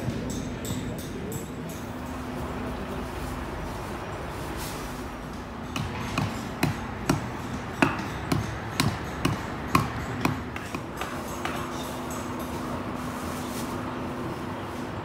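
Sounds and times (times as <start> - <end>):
sharp ringing knocks: 5.6 - 12.4.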